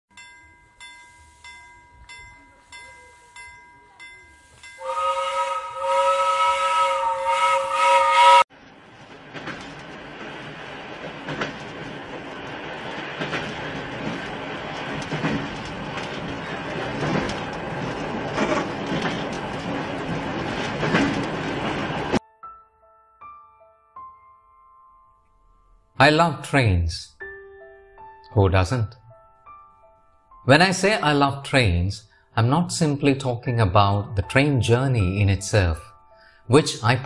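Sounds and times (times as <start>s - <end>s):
train rattling on track: 4.3s - 22.2s
train whistle chord: 4.8s - 8.5s.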